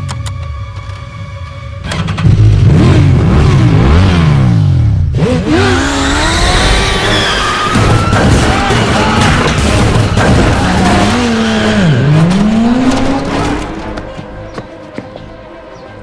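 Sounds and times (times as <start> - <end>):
car engine revving hard: 2.6 - 7.2.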